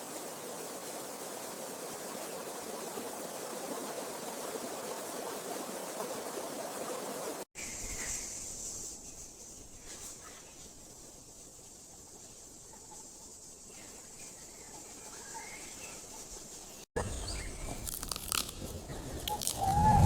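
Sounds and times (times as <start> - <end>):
rushing water: 0.0 - 7.5
faint high-pitched hiss: 7.6 - 20.0.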